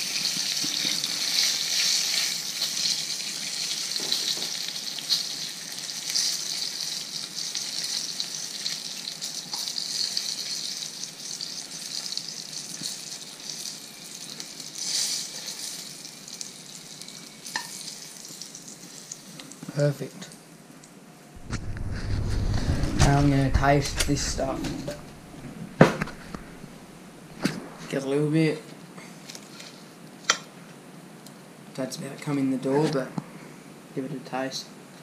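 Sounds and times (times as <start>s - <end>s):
fish sizzling in hot oil: 0.0s - 19.6s.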